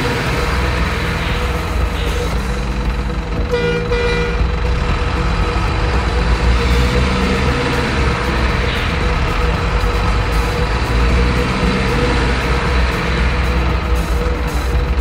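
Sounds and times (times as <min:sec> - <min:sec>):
truck engine rumbling: 0:00.0 - 0:15.0
truck horn toots: 0:03.4 - 0:14.0.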